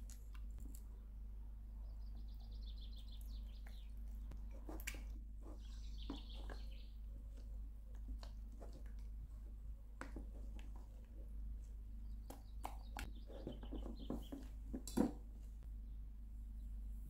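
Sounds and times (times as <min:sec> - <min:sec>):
steady low hum: 0:00.0 - 0:17.0
songbird chirping: 0:00.7 - 0:07.6, 0:11.6 - 0:14.6
hands mixing wet dough: 0:02.0 - 0:15.6.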